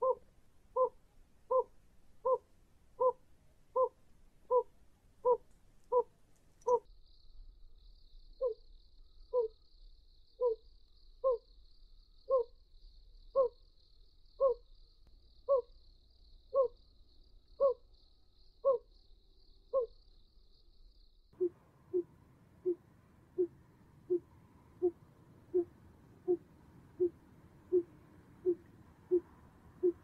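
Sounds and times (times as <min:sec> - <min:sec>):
owl hooting: 0:00.0 - 0:03.2, 0:03.8 - 0:06.1, 0:09.3 - 0:09.5, 0:10.4 - 0:10.6, 0:11.2 - 0:11.4, 0:12.3 - 0:12.5, 0:13.4 - 0:13.6, 0:14.4 - 0:14.6, 0:16.5 - 0:16.8, 0:17.6 - 0:17.8, 0:18.6 - 0:18.9, 0:19.7 - 0:19.9, 0:21.4 - 0:30.0
faint high hiss: 0:21.4 - 0:30.0.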